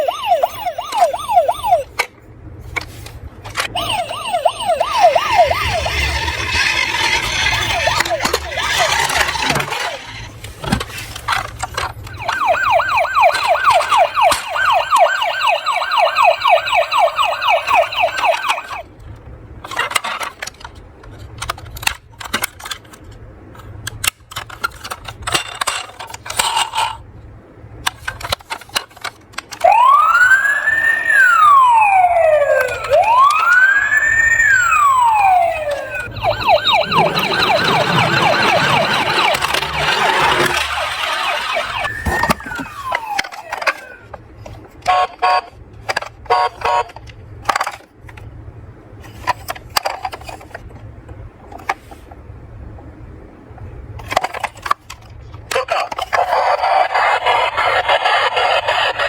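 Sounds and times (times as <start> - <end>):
electronic siren yelping and wailing: 0.0 - 2.0, 3.7 - 10.3, 12.1 - 18.8, 29.6 - 44.0, 56.4 - 59.0.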